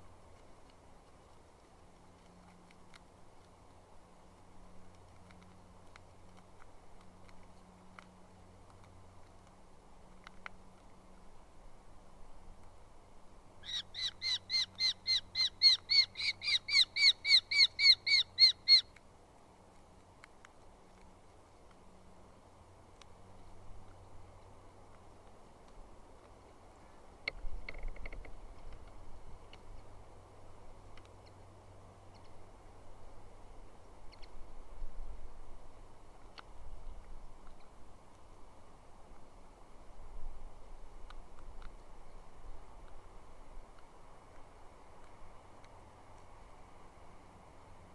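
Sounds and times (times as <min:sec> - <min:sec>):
bird calling sharp notes: 0:13.6 - 0:18.9.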